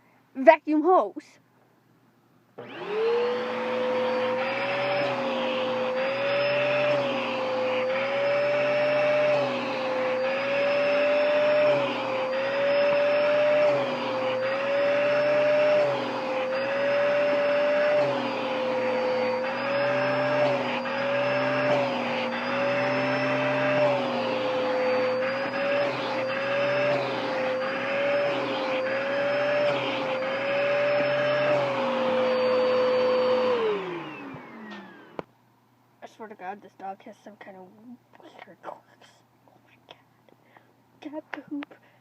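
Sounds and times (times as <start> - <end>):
vacuum cleaner motor whine: 2.6 - 35.3.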